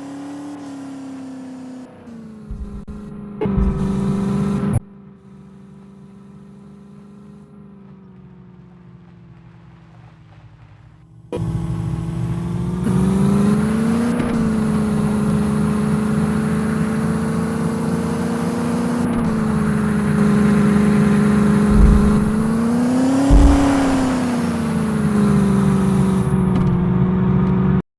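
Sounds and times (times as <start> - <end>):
car engine revving: 0.0 - 27.8
short low thumps: 2.5 - 4.9, 19.2 - 25.2.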